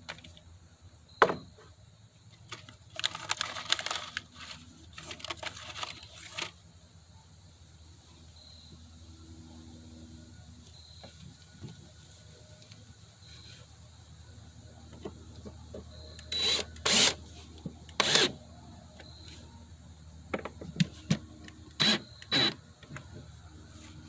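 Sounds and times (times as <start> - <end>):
wood and tools scraping: 16.3 - 18.4.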